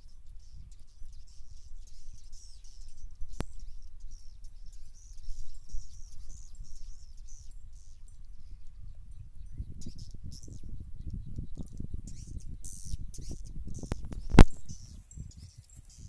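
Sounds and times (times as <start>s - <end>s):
small birds chirping: 0.0s - 16.0s
sharp click: 13.8s - 14.8s.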